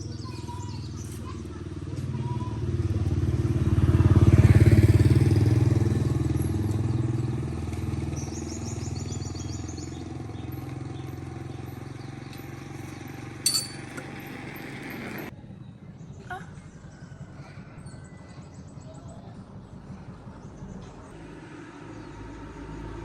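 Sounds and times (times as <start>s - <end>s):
engine running: 0.0s - 15.3s.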